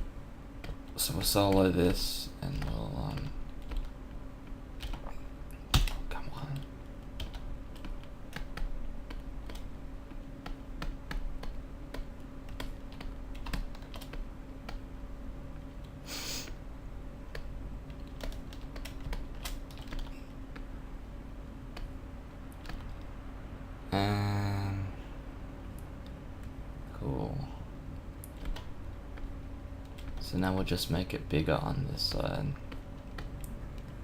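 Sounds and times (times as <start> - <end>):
faint steady hum: 0.0 - 34.0
keyboard keys clicking: 10.4 - 14.8, 17.3 - 20.7, 22.5 - 23.1, 28.2 - 30.2
short hiss: 16.1 - 16.6.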